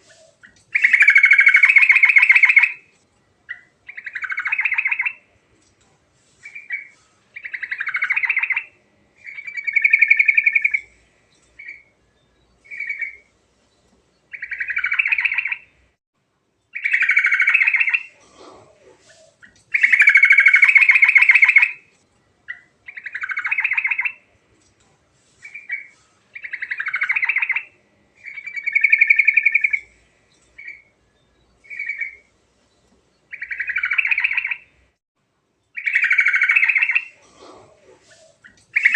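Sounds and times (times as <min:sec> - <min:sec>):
bird singing bubbly song: 0:14.3 - 0:15.8, 0:22.5 - 0:24.2, 0:25.4 - 0:34.8, 0:35.7 - 0:37.2, 0:38.1 - 0:38.9.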